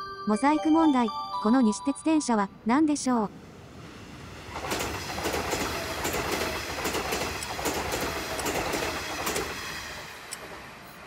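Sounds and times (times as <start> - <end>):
electric train running past: 3.3 - 11.0
rail joint clacks: 4.5 - 10.8.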